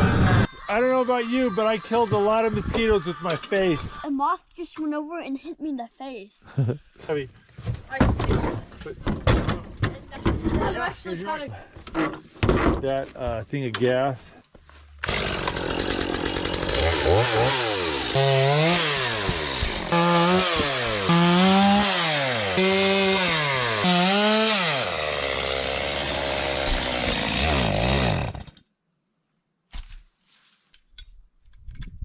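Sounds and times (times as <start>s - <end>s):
chainsaw cutting wood: 1.5s - 4.0s, 15.0s - 28.6s.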